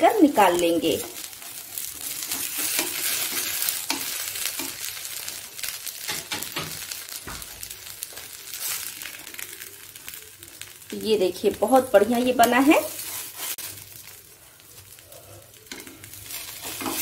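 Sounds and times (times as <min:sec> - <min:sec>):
oil sizzling under pancakes: 0:00.0 - 0:17.0
spatula scraping and tapping pan: 0:01.0 - 0:05.0, 0:06.0 - 0:08.8, 0:15.7 - 0:17.0.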